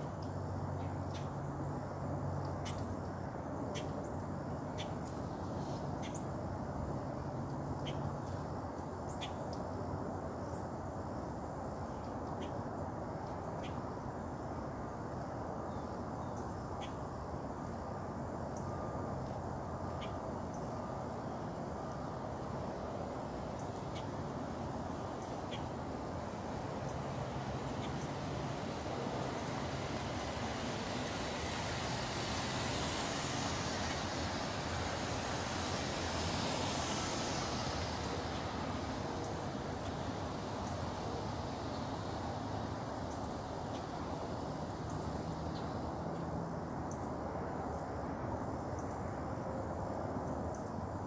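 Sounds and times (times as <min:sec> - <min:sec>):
steady background hum: 0:00.0 - 0:51.0
passing motor vehicle: 0:26.4 - 0:47.8.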